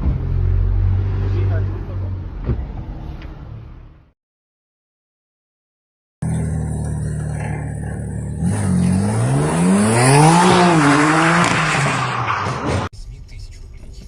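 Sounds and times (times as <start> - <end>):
car engine revving: 6.2 - 12.7.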